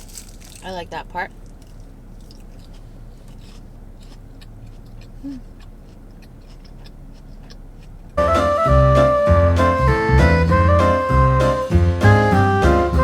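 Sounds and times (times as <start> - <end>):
closed-mouth hum: 0.6 - 13.0
person chewing food: 1.5 - 8.2
loud music: 8.2 - 13.0.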